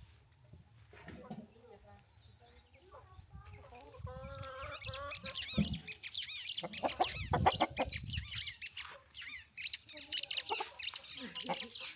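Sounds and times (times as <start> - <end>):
chickens clucking: 2.9 - 9.2, 9.9 - 11.9
short high chirping calls: 4.7 - 11.9.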